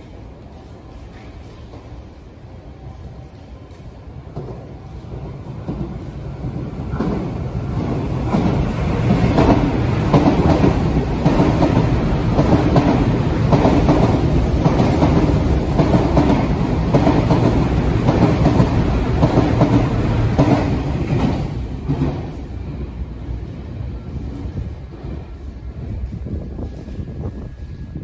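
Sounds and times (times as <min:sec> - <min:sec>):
train passing at speed: 0:00.0 - 0:28.0.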